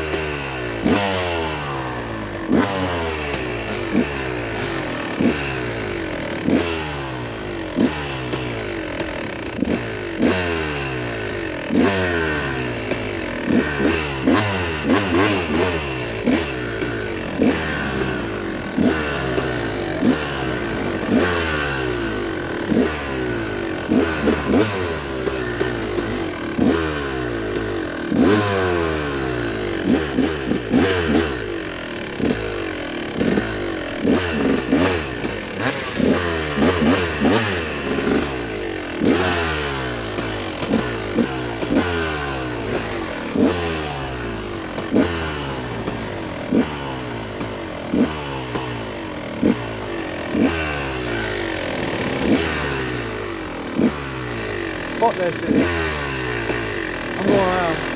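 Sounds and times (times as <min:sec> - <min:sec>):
dirt bike engine revving: 0:00.0 - 0:57.9
sharp knocks and rattles: 0:32.0 - 0:43.6.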